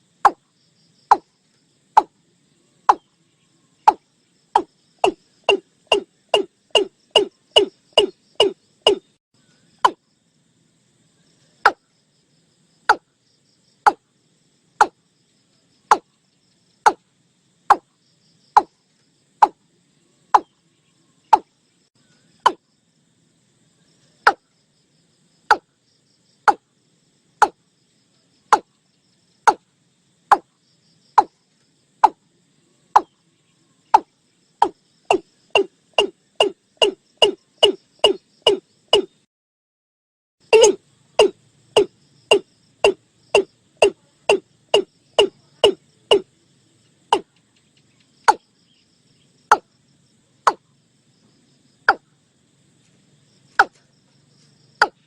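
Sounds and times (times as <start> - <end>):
bird calling sharp notes: 4.6 - 9.1, 35.1 - 39.2, 40.5 - 46.2.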